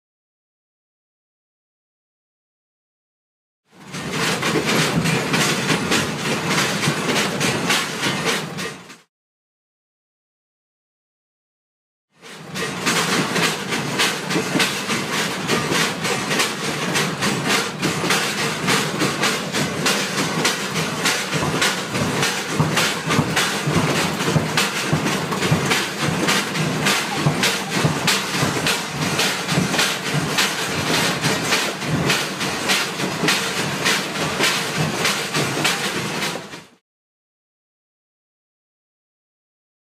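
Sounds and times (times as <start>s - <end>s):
steady train rumble: 3.8s - 9.0s, 12.2s - 36.8s
train coach rattling: 3.8s - 9.0s, 12.2s - 36.7s
train wheels clattering over rail joints: 3.8s - 9.1s, 12.2s - 36.8s.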